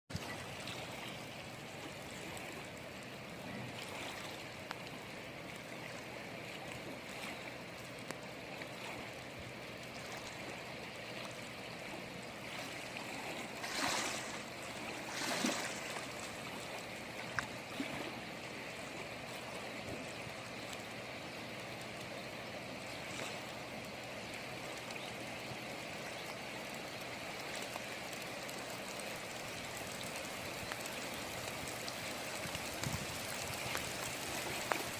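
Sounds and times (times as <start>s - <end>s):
rain hiss: 13.4s - 34.9s.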